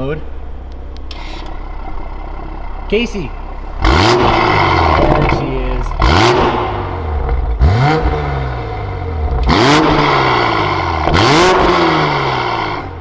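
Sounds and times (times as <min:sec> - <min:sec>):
car engine revving: 0:00.0 - 0:13.0
exhaust blast: 0:01.1 - 0:13.0.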